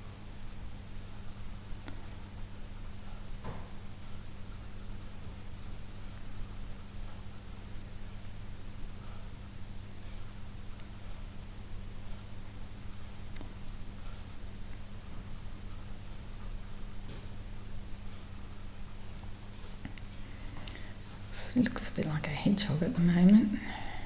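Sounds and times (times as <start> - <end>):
pencil scratching on paper: 4.1 - 19.8.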